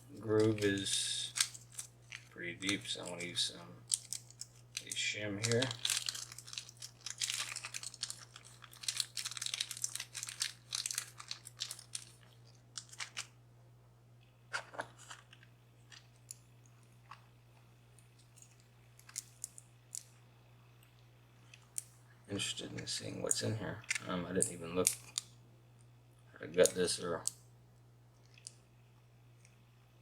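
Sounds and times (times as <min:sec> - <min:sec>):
metal shim crinkling: 0:00.0 - 0:13.3
faint low hum: 0:00.0 - 0:30.0.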